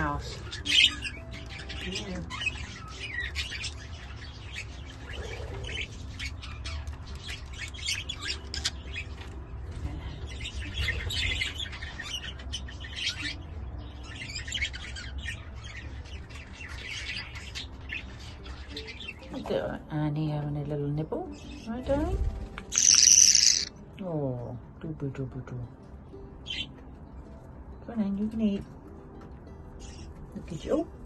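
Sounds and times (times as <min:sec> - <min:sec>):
budgerigars chattering: 0:00.0 - 0:09.2, 0:10.3 - 0:19.3, 0:22.7 - 0:23.8.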